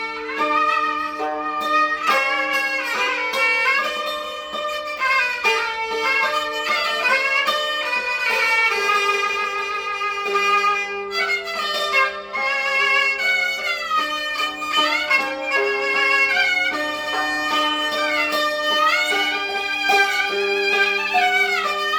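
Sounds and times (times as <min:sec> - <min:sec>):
hammered dulcimer notes: 0:00.0 - 0:21.9
high bowed fiddle melody: 0:00.0 - 0:21.9.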